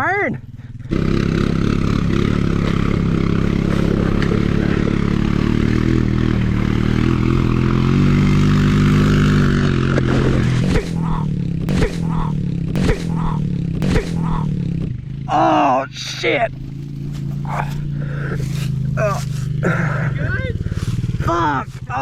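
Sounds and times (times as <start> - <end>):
motorbike engine revving: 0.0 - 22.0
sharp knocks: 10.0 - 14.6.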